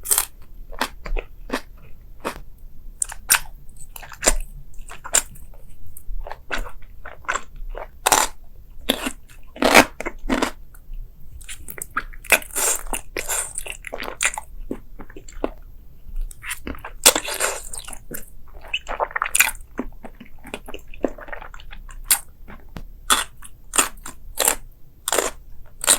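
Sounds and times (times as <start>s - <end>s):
person chewing crunchy food: 0.0s - 25.9s.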